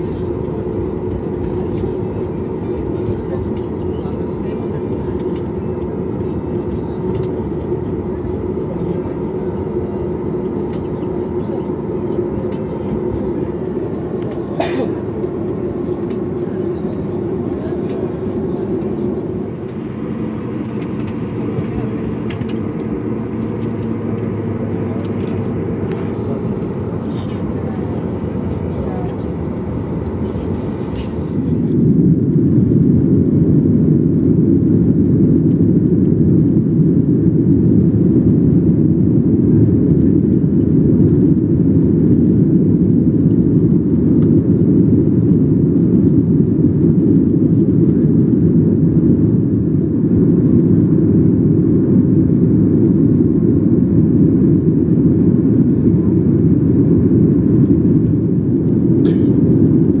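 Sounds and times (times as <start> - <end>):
jet airliner cabin rumble: 0.0 - 60.0.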